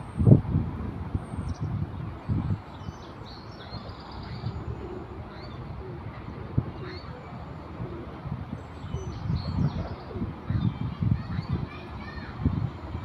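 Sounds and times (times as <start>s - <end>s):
birds chirping: 1.2s - 13.0s.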